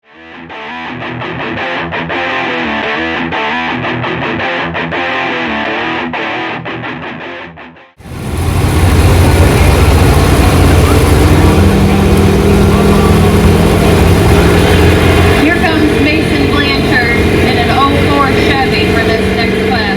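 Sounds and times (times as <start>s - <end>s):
rock music with electric guitar: 0.0s - 19.9s
diesel truck engine under load: 8.0s - 19.9s.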